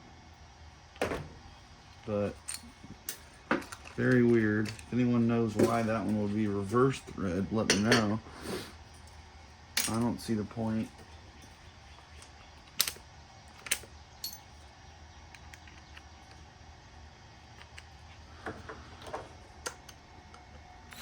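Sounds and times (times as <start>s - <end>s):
low steady hum: 0.0s - 21.0s
metal parts clicking and knocking: 2.4s - 4.9s, 12.2s - 14.5s.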